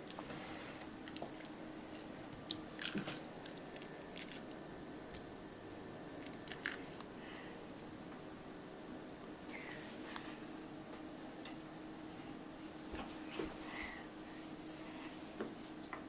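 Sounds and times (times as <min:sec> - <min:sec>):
soft squishing of avocado: 0:00.0 - 0:07.2.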